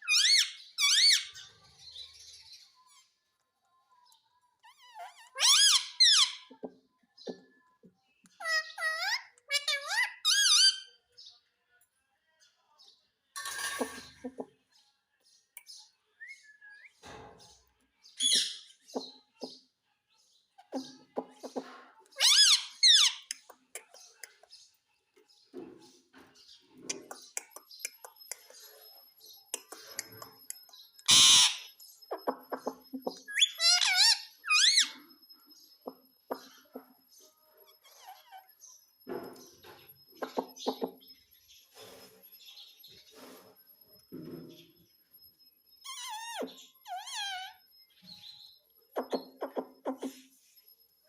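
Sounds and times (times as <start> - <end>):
parrot chirps: 0.0 - 1.5, 4.6 - 6.7, 8.4 - 11.0, 22.2 - 24.3, 29.5 - 35.1, 45.8 - 48.3
parrot harsh rasping call: 31.1 - 31.7.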